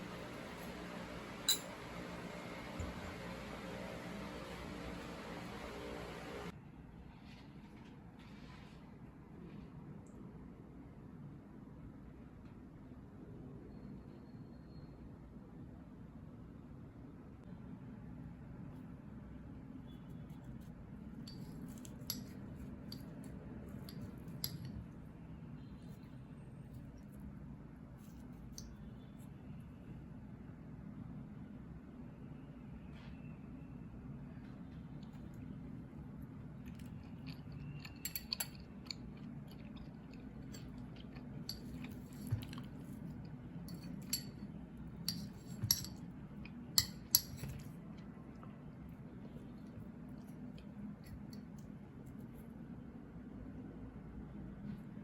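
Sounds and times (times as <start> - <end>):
steady low hum: 0.0 - 6.6
chewing sticky rice cake: 36.2 - 44.1.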